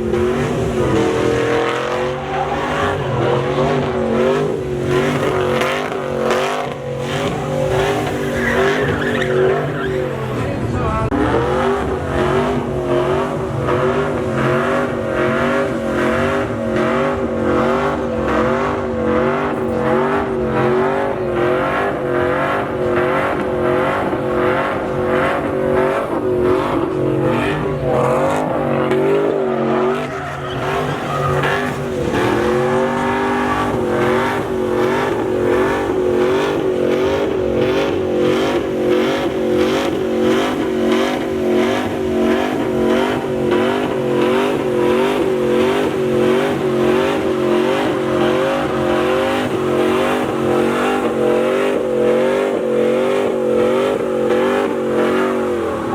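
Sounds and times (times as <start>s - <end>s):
truck engine revving: 0.0s - 55.9s
tyre squeal: 0.5s - 10.4s, 28.8s - 37.1s.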